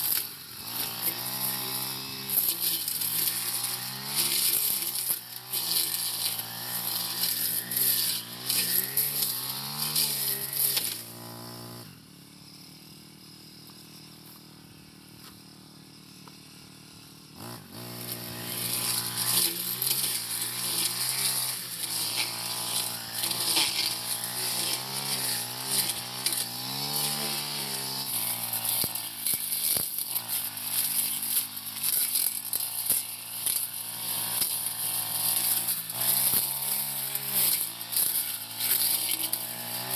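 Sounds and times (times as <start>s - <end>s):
brush cutter engine revving: 0.0s - 39.9s.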